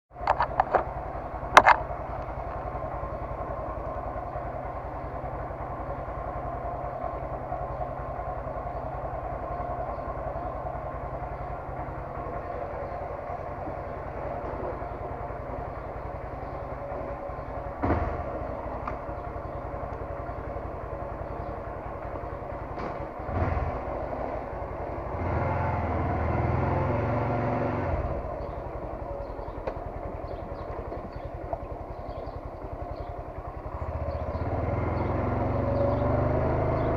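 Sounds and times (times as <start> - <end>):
motorcycle engine running: 0.1 - 36.9.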